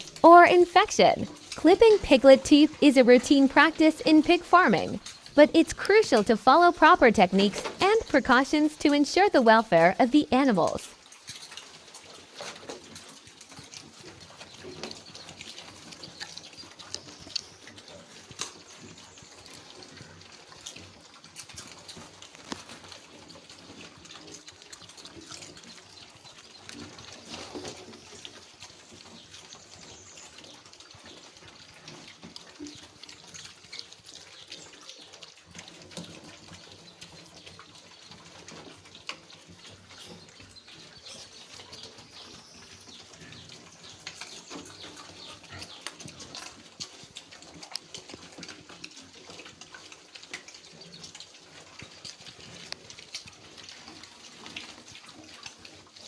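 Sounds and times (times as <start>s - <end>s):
small clicks and rustles: 10.8s - 56.0s.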